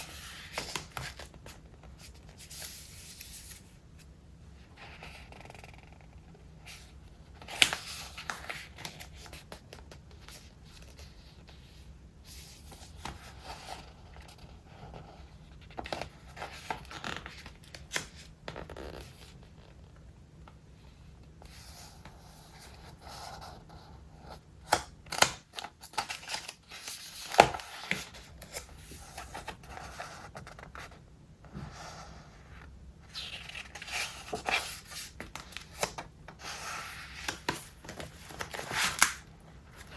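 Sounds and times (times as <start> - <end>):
stiff pages snapping: 24.7 - 26.6, 37.2 - 39.2
notebook pages rustling: 25.1 - 31.0, 33.1 - 39.9.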